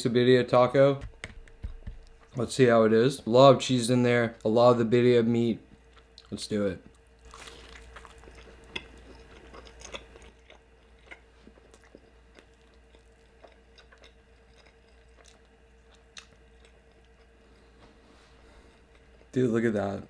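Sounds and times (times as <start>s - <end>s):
crunchy bite into taco: 7.2s - 17.4s
chewing: 7.2s - 17.5s.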